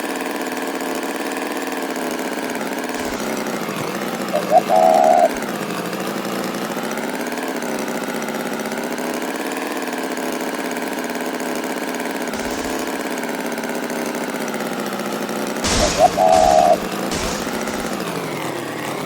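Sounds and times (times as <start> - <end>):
engine idling: 2.0 - 8.9, 11.9 - 19.0.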